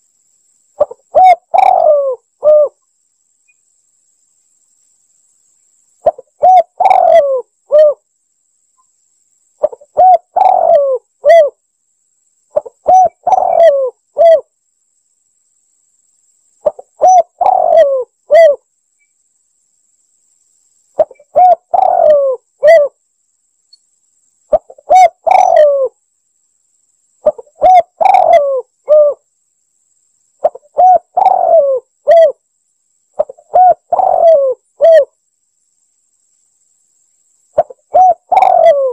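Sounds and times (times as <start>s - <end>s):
dove cooing: 0.8s - 2.8s, 6.0s - 8.0s, 9.6s - 11.6s, 12.5s - 14.5s, 16.6s - 18.6s, 21.0s - 23.0s, 24.5s - 26.0s, 27.2s - 29.2s, 30.4s - 32.4s, 33.2s - 35.1s, 37.6s - 38.9s.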